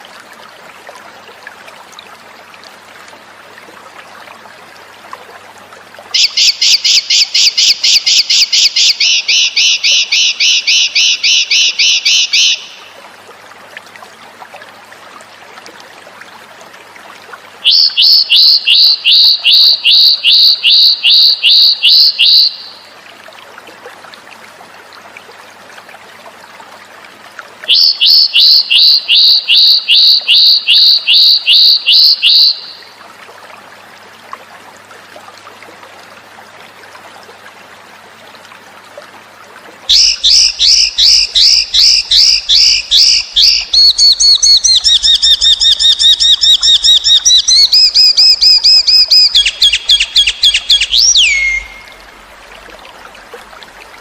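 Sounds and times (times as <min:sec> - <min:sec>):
faint water trickling: 0:00.0 - 0:54.0
bird chirping fast high notes: 0:39.9 - 0:51.9.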